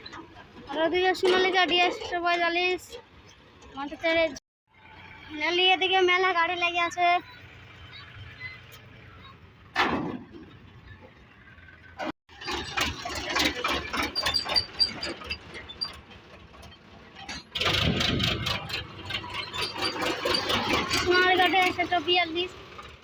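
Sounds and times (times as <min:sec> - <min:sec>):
diesel tractor engines running: 0:00.0 - 0:23.0.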